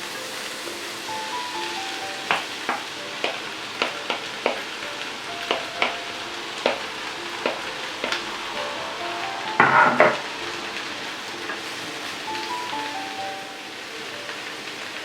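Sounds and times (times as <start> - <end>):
food sizzling in a pan: 0.0 - 15.0
utensil knocking against pan: 2.3 - 4.7, 6.6 - 8.2, 9.6 - 10.2.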